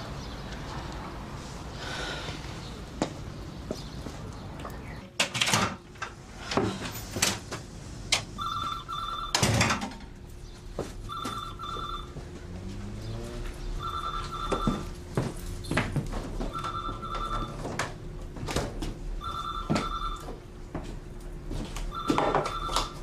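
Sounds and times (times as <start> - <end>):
telephone ringing: 8.4 - 9.7, 11.1 - 12.2, 13.8 - 15.0, 16.5 - 17.7, 19.2 - 20.4, 21.9 - 23.0.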